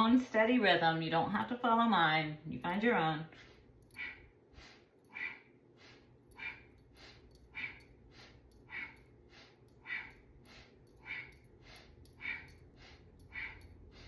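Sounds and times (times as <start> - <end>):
rhythmic breathing through nose: 3.3 - 14.0.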